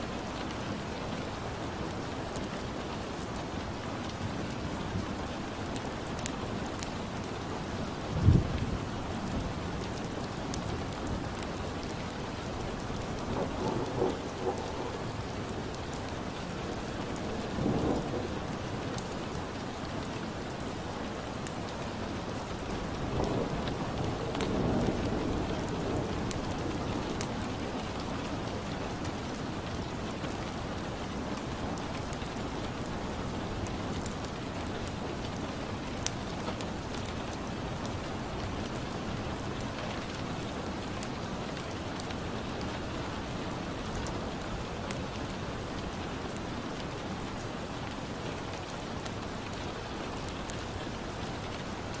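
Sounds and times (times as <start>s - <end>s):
steady rain falling: 0.0s - 52.0s
distant thunder rumbles: 13.2s - 16.0s.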